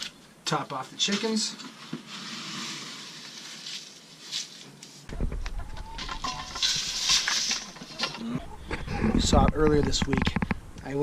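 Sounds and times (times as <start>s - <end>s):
rustling: 1.0s - 10.6s
hens clucking: 5.1s - 10.4s.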